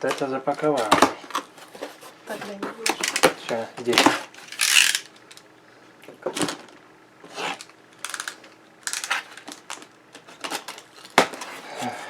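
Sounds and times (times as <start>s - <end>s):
cardboard scraping and rustling: 0.0s - 2.8s, 10.2s - 12.0s.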